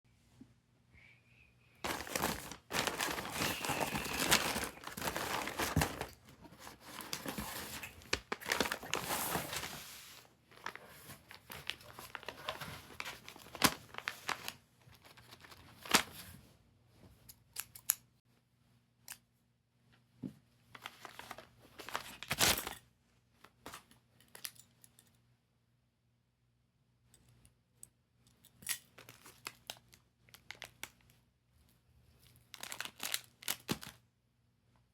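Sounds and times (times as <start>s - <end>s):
snack packaging crinkling and tearing: 1.8s - 9.7s, 20.8s - 22.8s, 29.0s - 31.1s, 32.4s - 34.0s.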